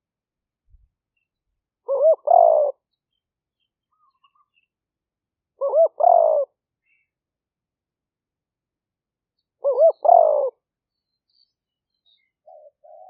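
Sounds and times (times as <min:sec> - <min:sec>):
dove cooing: 0:01.9 - 0:02.8, 0:05.6 - 0:06.6, 0:09.6 - 0:10.6, 0:12.5 - 0:13.0.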